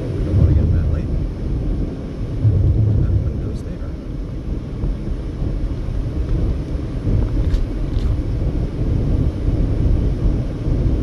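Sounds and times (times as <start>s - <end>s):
car engine drone: 0.0s - 11.0s
road and tyre noise: 0.0s - 11.0s.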